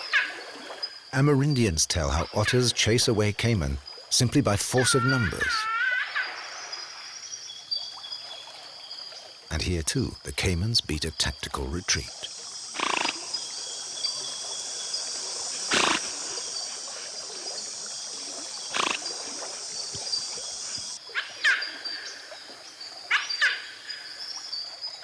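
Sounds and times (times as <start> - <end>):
animal squeals: 4.8 - 6.3.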